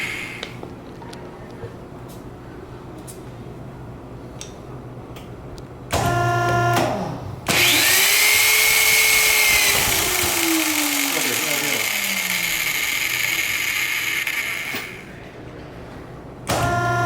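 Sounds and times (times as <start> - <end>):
power drill motor whining: 7.5 - 15.1.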